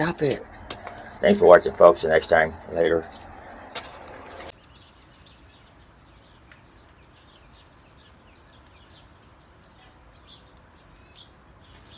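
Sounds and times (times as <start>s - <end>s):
low steady hum: 0.0s - 4.5s
faint birds chirping: 0.0s - 11.9s.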